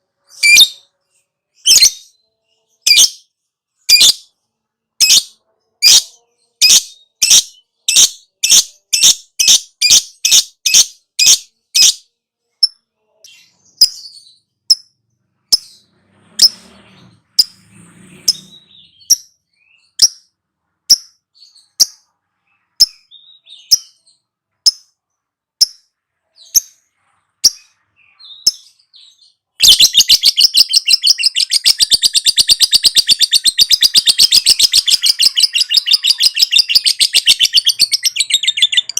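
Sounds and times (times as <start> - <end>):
lovebird calling: 29.6 - 38.9
lovebird chattering trill: 29.6 - 38.9.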